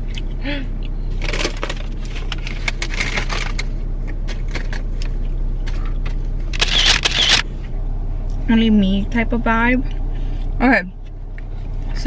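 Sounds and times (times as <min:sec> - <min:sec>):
low hum in car cabin: 0:00.0 - 0:12.0
short clicks and crackles: 0:06.6 - 0:07.4.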